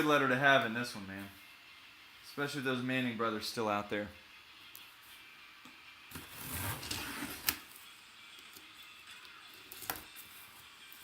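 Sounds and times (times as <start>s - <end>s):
box top ripped open: 6.1s - 7.7s.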